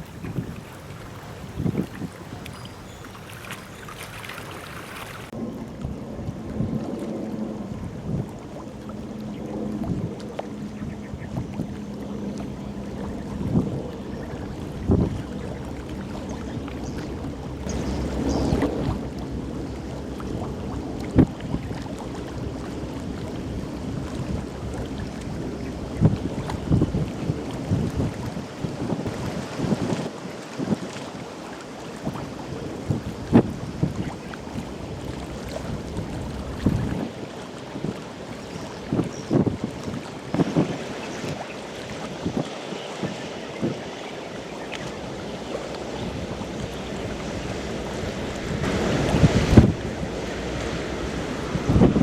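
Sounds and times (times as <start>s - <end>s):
boat engine drone: 0.0s - 30.1s, 31.2s - 52.0s
wind gusting on microphone: 0.0s - 52.0s
steady low rumble: 5.3s - 27.9s.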